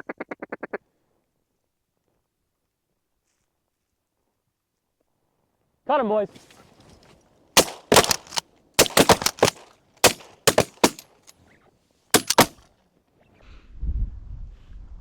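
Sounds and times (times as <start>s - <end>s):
shotgun blasts: 7.6s - 11.0s, 12.2s - 12.6s
wind rumble on microphone: 13.4s - 15.0s.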